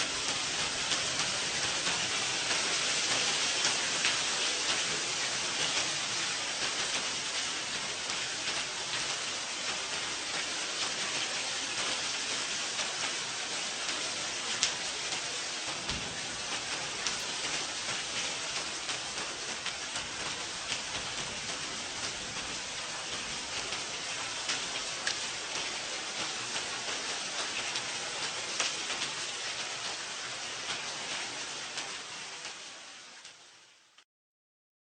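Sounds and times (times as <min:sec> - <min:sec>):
steady rain falling: 0:00.0 - 0:34.0
raindrops ticking sharply: 0:00.1 - 0:34.0.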